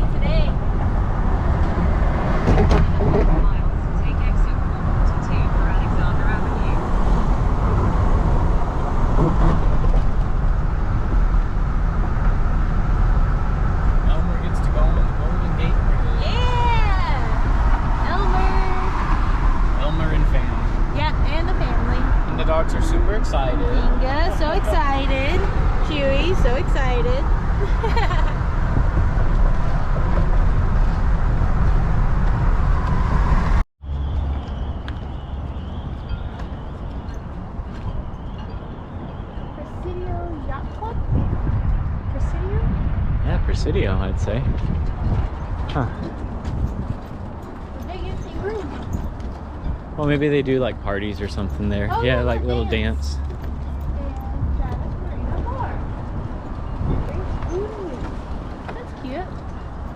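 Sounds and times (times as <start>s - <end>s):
van road and engine rumble: 0.0s - 59.9s
faint high hum: 50.0s - 53.2s.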